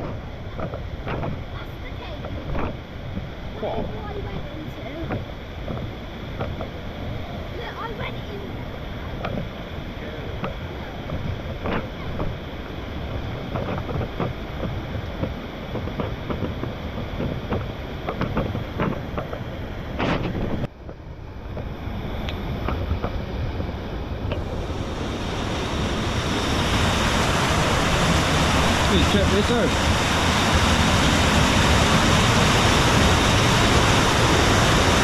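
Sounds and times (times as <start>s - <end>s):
floodwater rushing: 0.0s - 35.0s
wind buffeting microphone: 0.0s - 35.0s.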